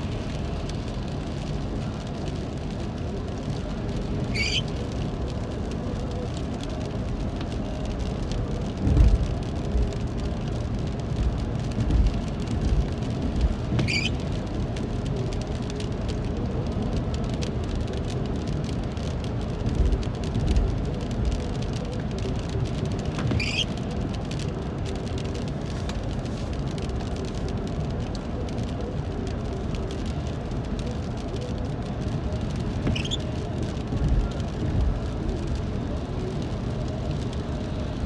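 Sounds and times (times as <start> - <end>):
car driving rumble: 0.0 - 38.0
rain pattering on a car: 0.0 - 38.0
short high squeaks: 4.3 - 4.6, 13.8 - 14.2, 23.3 - 23.7, 32.9 - 33.2.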